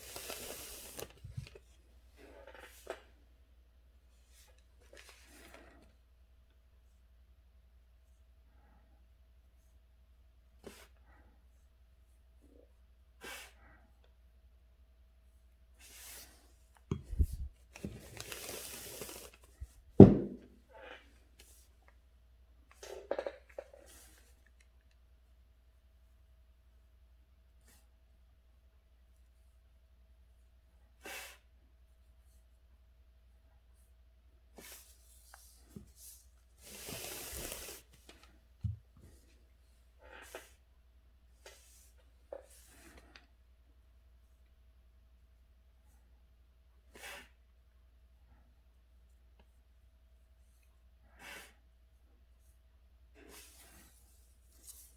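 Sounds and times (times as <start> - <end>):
paper sliding or tearing: 0.0 - 1.2, 17.1 - 19.6, 36.6 - 38.0
paper rustling: 17.2 - 19.6
thumps on desk: 20.0 - 20.6.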